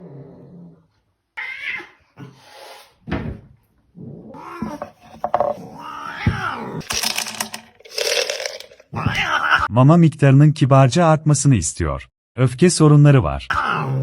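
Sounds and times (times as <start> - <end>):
cat meowing and yowling: 9.0 - 9.7.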